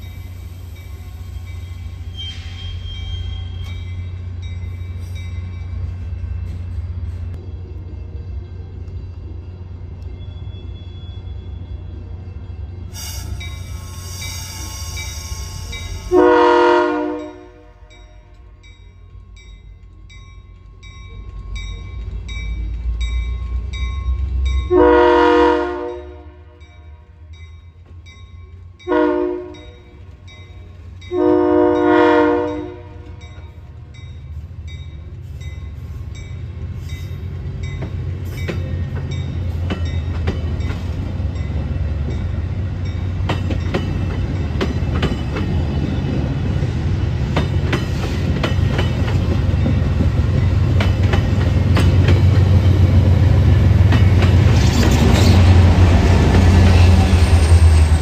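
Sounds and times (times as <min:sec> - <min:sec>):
train rumble: 0:00.0 - 0:58.0
locomotive horn blasts: 0:12.9 - 0:18.3, 0:24.7 - 0:26.8, 0:28.9 - 0:29.8, 0:31.1 - 0:33.2
wheels clicking over rail joints: 0:37.6 - 0:46.3, 0:47.2 - 0:56.8.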